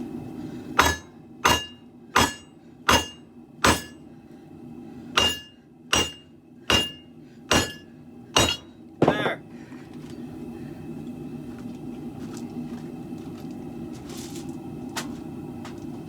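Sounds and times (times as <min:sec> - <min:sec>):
hammer striking steel on anvil: 0:00.8 - 0:04.0, 0:05.2 - 0:09.3.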